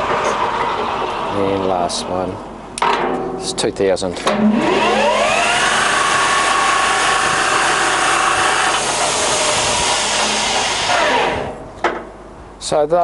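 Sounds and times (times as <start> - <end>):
lathe whirring with whine: 0.0 - 2.3, 4.5 - 11.7.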